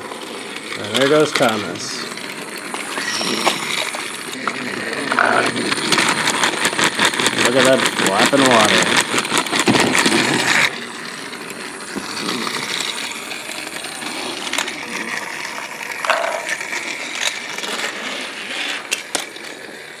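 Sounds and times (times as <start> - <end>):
plastic toy pieces clattering: 2.6 - 11.4, 16.0 - 19.9.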